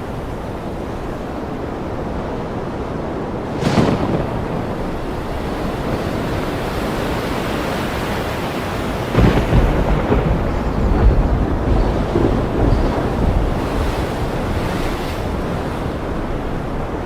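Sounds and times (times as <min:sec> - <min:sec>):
ocean waves: 0:00.0 - 0:17.0
rain: 0:00.0 - 0:17.0
wind: 0:00.0 - 0:17.0
rolling thunder rumble: 0:03.4 - 0:17.0
sharp thunder crack: 0:03.5 - 0:07.0, 0:09.0 - 0:14.7.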